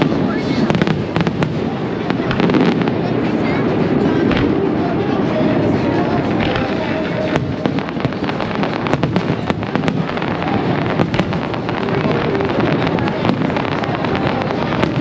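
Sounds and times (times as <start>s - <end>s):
crackling pops: 6.3s - 15.0s.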